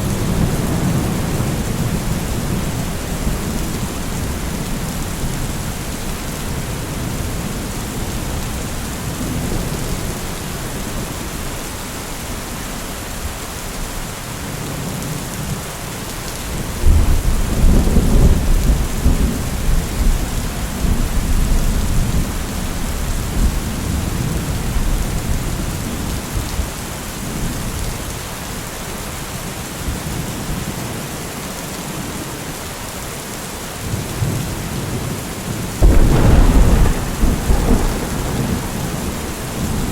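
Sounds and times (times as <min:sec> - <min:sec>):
heavy rain: 0:00.0 - 0:39.9
loud deep thunderclap: 0:35.8 - 0:39.9
rolling thunder: 0:35.8 - 0:39.9.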